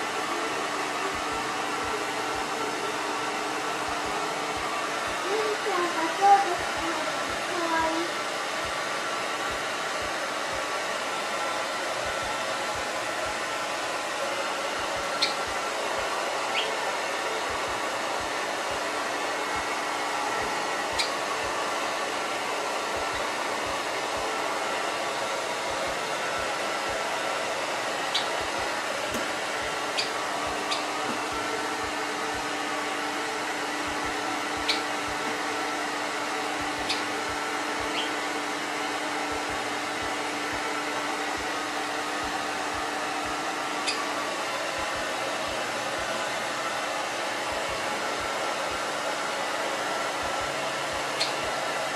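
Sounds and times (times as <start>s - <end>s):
hair dryer running: 0.0s - 51.9s
bird chirping: 15.2s - 15.4s, 16.5s - 16.8s, 20.9s - 21.2s, 28.1s - 28.4s, 30.0s - 30.9s, 34.7s - 34.9s, 36.9s - 37.1s, 37.9s - 38.2s, 43.8s - 44.0s, 51.2s - 51.4s.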